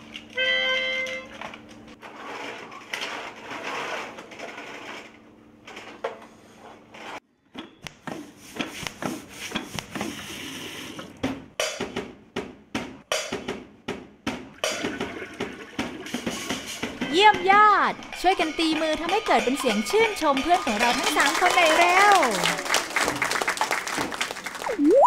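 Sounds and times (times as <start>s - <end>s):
hands tapping household objects: 16.1s - 22.2s
plastic toys rattling and whirring: 18.2s - 22.5s.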